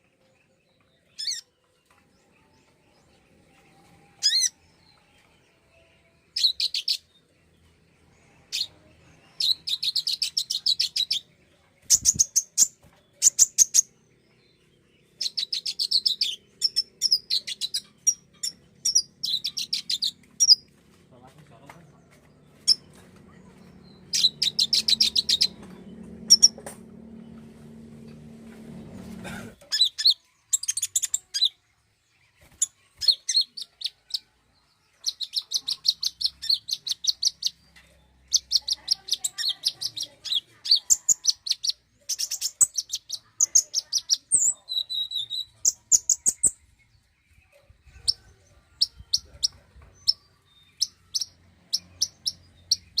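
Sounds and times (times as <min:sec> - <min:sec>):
bird chirping trills: 0:00.0 - 0:53.0
low hum: 0:21.8 - 0:29.6.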